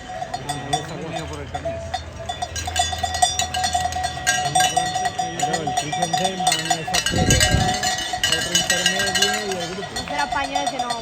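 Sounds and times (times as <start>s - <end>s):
cowbells ringing fast: 0.0s - 11.0s
crowd voices: 0.0s - 11.0s.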